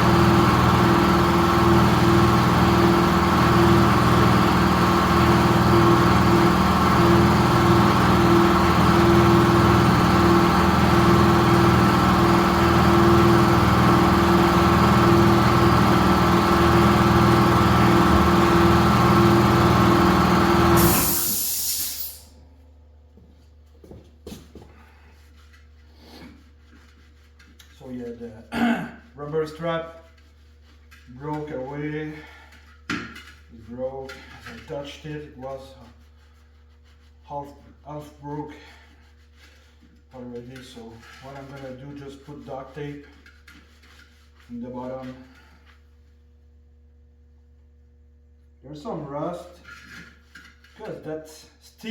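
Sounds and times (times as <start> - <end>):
air compressor motor running: 0.0 - 22.3
sharp hiss of released air: 20.8 - 22.3.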